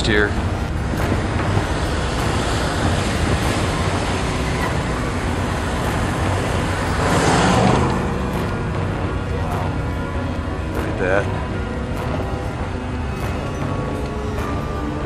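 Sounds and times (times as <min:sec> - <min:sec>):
car road and wind noise: 0:00.0 - 0:15.0.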